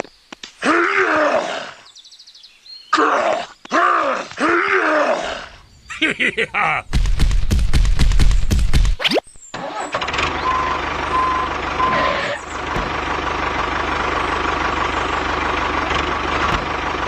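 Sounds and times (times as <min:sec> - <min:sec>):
engine running: 0:09.5 - 0:17.0
short reversing beeps: 0:09.9 - 0:12.4.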